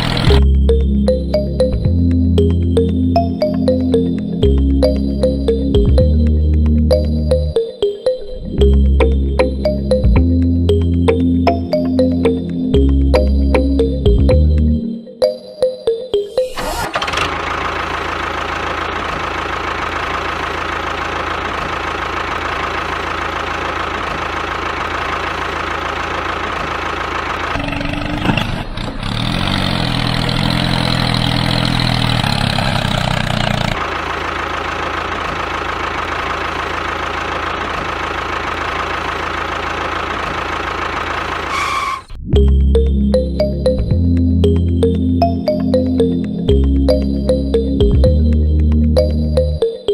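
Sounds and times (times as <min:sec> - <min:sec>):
small engine whining: 0:00.0 - 0:00.6, 0:16.4 - 0:42.2.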